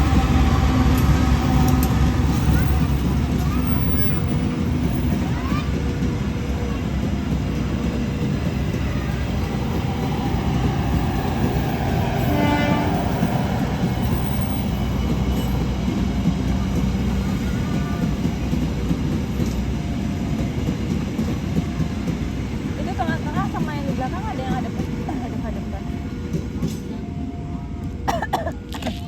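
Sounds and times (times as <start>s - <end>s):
train wheels rumbling: 0.0s - 29.0s.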